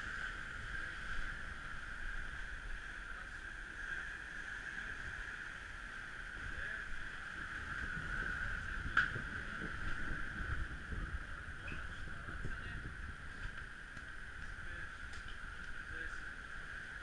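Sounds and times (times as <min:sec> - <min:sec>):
wind buffeting microphone: 0:04.8 - 0:17.0
strong wind rushing: 0:06.3 - 0:13.6.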